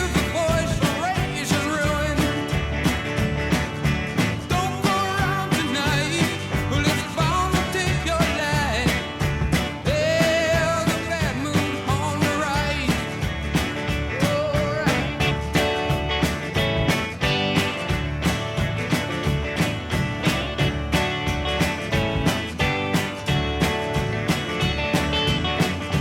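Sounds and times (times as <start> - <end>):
song with beat and singing: 0.0 - 2.7, 4.4 - 15.7.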